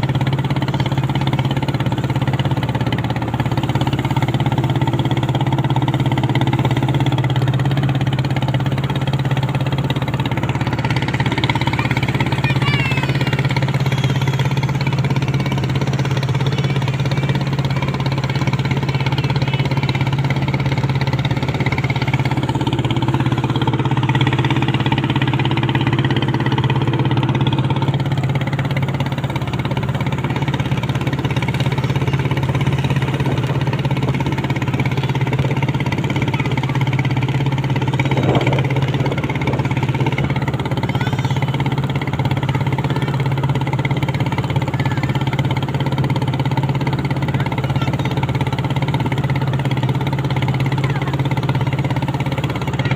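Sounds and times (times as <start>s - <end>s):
boat engine humming: 0.0s - 52.9s.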